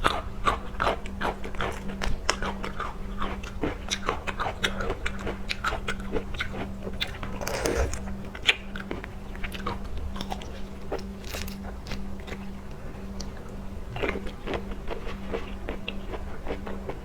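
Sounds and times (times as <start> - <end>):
person chewing crunchy food: 7.3 - 8.2
wet mouth sounds: 7.4 - 8.1.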